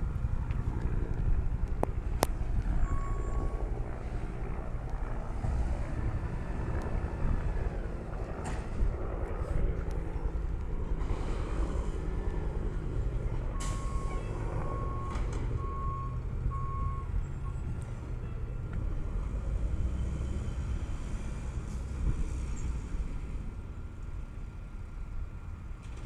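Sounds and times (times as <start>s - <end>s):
diesel engine running: 0.0s - 26.0s
reversing beeper: 2.7s - 3.6s, 13.5s - 18.6s.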